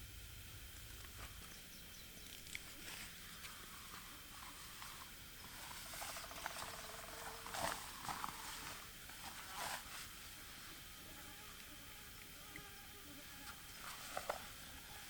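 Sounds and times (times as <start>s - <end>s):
soft rustling: 2.5s - 10.9s, 13.4s - 15.0s.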